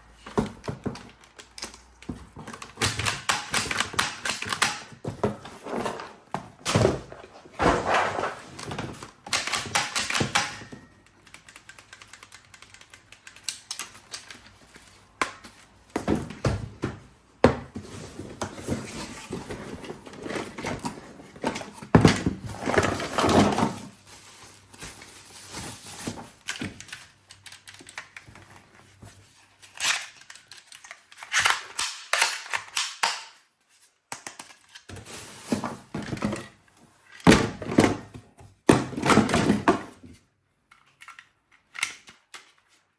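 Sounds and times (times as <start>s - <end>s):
hard objects clicking and knocking: 0.3s - 14.3s
rustling and clattering bursts: 5.2s - 9.0s.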